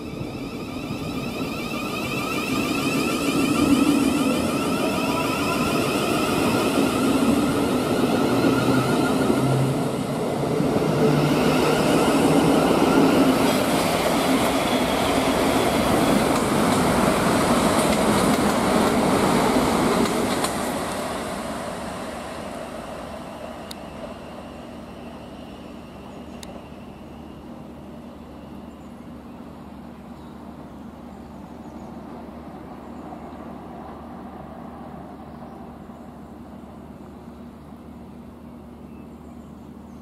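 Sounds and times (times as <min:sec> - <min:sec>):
train wheels rushing on rails: 0:00.0 - 0:28.8.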